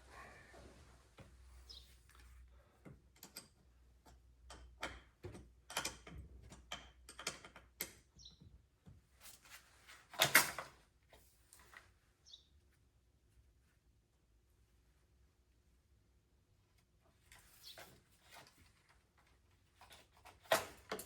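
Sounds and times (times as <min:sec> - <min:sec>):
tools clicking and knocking: 0:02.8 - 0:08.2, 0:19.9 - 0:21.0.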